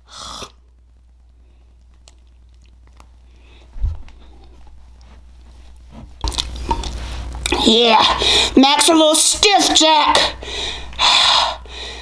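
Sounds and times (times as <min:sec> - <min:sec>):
person chewing food: 0:01.5 - 0:07.6.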